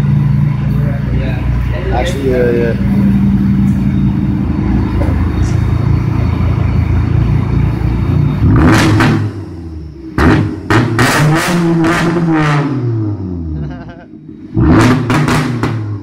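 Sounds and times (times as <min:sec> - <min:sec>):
diesel engine revving on limiter: 0:00.0 - 0:13.6, 0:14.2 - 0:16.0
sharp exhaust bangs: 0:02.5 - 0:13.4, 0:14.3 - 0:16.0.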